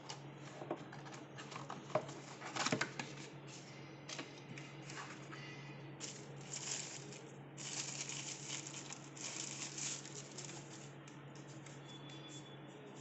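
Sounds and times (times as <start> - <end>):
packaging rustling and crinkling: 6.0 - 10.9.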